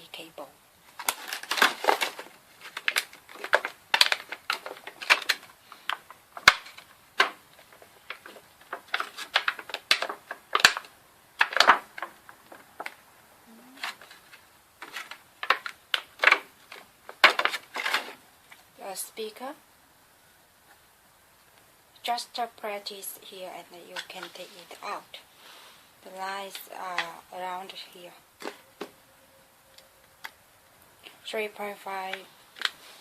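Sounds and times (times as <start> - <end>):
packaging handled with clicks and rustles: 0.8 - 13.1, 13.8 - 18.8, 23.8 - 25.2, 26.0 - 29.0, 29.7 - 33.0.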